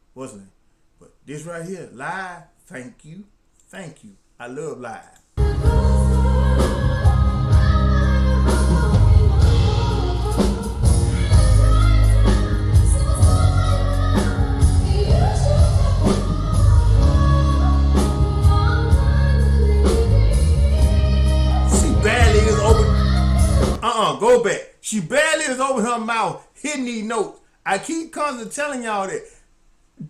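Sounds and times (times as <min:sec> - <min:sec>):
steady bass line: 0:05.4 - 0:23.8
woman singing with band: 0:05.4 - 0:23.8
loud drums: 0:08.5 - 0:23.9.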